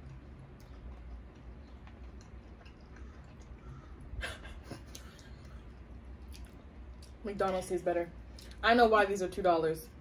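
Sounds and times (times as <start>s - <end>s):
chewing hard food: 0.0s - 7.2s.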